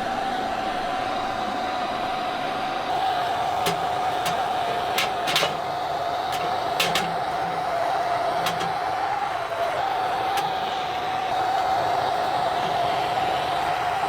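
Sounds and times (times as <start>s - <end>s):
firewood crackling and popping: 3.0s - 14.0s.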